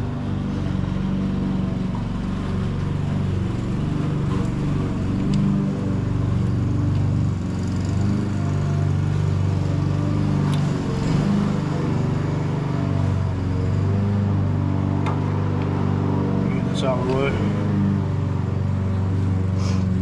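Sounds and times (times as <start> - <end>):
tractor engine idling: 16.4 - 17.6.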